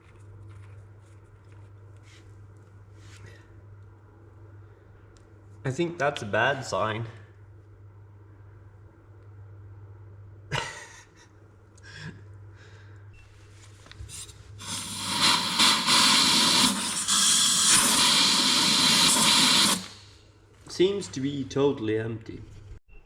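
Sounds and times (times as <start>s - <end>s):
loud steady hiss: 14.6s - 20.3s.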